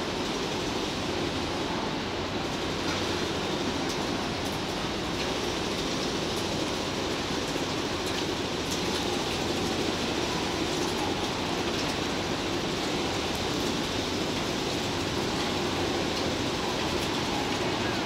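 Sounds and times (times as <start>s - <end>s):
rain falling: 0.0s - 18.0s
train rolling along track: 0.0s - 18.0s.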